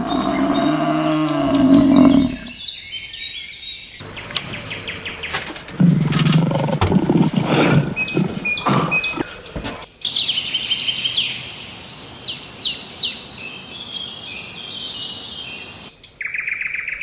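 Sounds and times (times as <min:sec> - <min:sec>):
low animal call: 0:00.0 - 0:02.6, 0:04.4 - 0:09.8
low rough animal call: 0:00.0 - 0:02.6, 0:04.4 - 0:09.8
birds chirping: 0:00.0 - 0:17.0.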